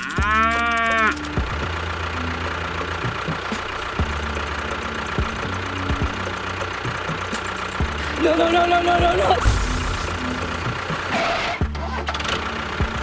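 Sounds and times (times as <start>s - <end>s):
engine running with even knocking: 0.0s - 13.0s.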